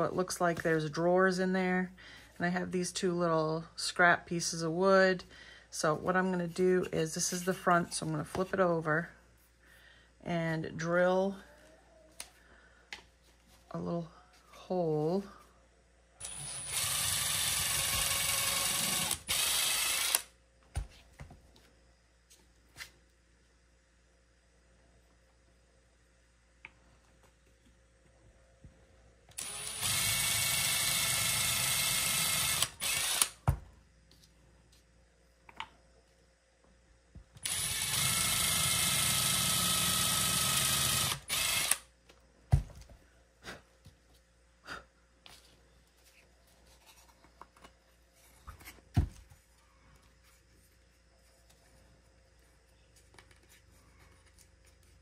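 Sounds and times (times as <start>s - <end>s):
cordless drill drilling wood: 16.2s - 20.3s, 29.3s - 33.4s, 37.4s - 41.8s
drill trigger blips: 16.2s - 20.3s, 29.3s - 33.4s, 37.4s - 41.8s.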